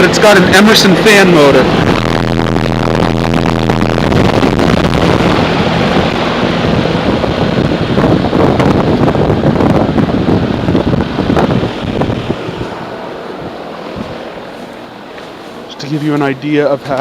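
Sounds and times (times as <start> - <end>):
condenser fan rushing air: 0.0 - 17.0
low hum: 0.0 - 17.0.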